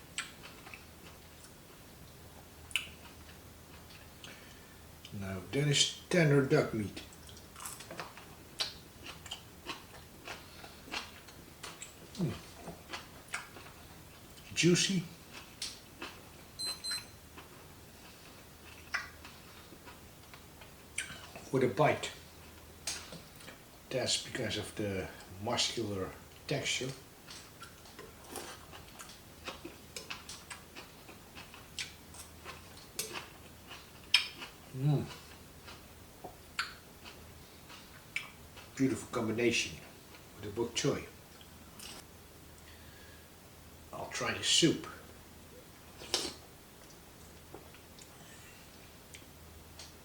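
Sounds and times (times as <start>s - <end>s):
person chewing: 0.1s - 1.8s, 2.6s - 5.1s, 7.0s - 14.5s, 15.1s - 21.5s, 27.2s - 38.8s, 41.3s - 42.0s, 45.9s - 50.0s.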